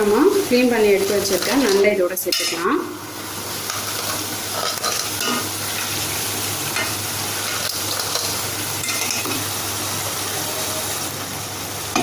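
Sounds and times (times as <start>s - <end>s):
food sizzling in hot oil: 0.0s - 12.0s
spoon scraping a pan: 3.6s - 5.9s, 6.8s - 9.4s.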